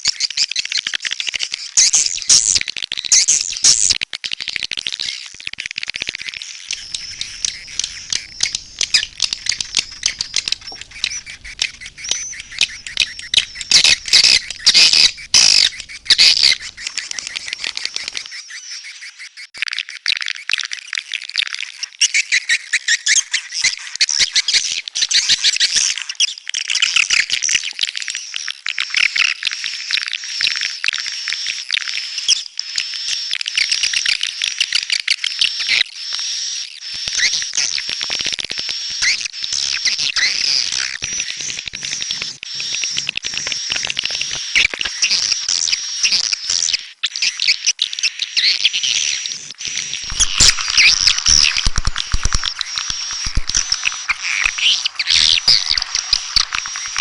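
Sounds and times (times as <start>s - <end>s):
swiftlets twittering: 6.7s - 18.5s, 49.0s - 57.0s.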